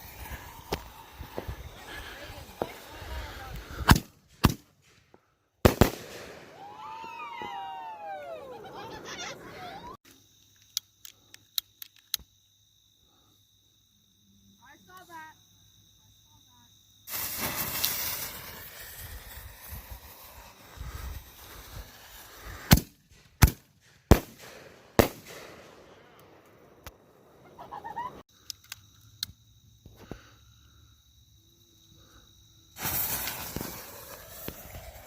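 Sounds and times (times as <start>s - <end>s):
firework bangs: 0.0s - 5.0s, 5.6s - 9.0s, 17.1s - 28.0s, 32.8s - 35.0s
firework rushing hiss: 0.0s - 9.7s, 17.0s - 28.2s, 32.7s - 35.0s.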